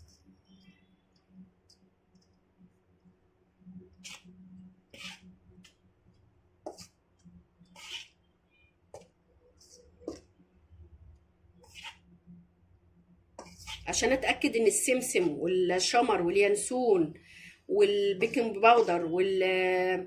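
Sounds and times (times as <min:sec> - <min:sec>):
flour being stirred in a bowl: 0:06.7 - 0:06.9.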